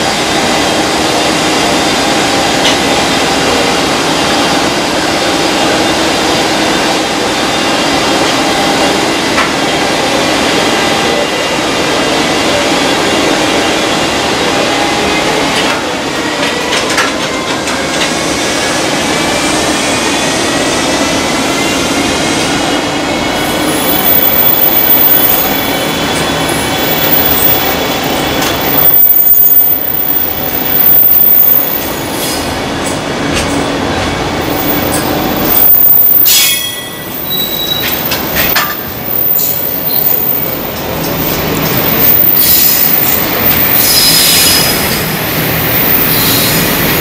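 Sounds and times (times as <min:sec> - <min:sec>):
freight train wheels rumbling: 0:00.0 - 0:47.0
wheels clacking on track: 0:15.2 - 0:19.7, 0:23.7 - 0:47.0
wheel squeal: 0:28.6 - 0:32.4, 0:34.6 - 0:38.5, 0:41.2 - 0:47.0.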